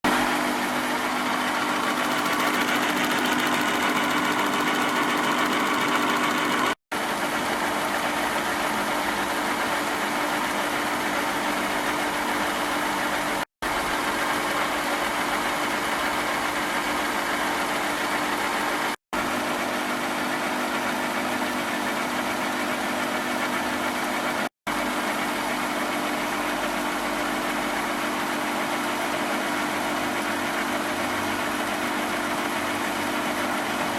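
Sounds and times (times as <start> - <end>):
milling machine humming: 0.1 - 6.8.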